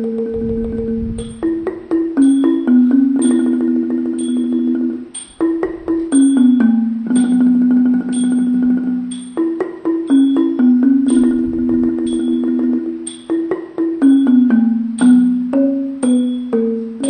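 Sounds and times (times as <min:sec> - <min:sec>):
gong circle: 0:00.0 - 0:01.6, 0:10.2 - 0:13.3
held melody notes: 0:00.0 - 0:17.0
xylophone struck notes: 0:00.0 - 0:17.0.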